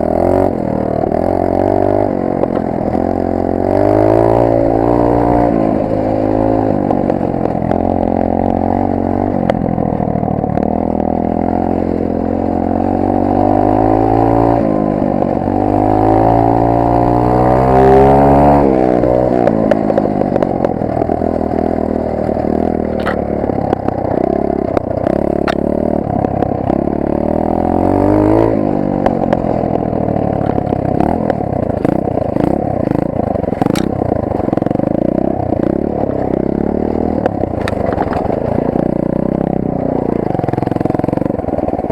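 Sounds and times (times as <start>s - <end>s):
pit bike engine revving: 0.0s - 41.9s
bike clattering and rattling: 19.1s - 27.0s, 28.3s - 41.9s.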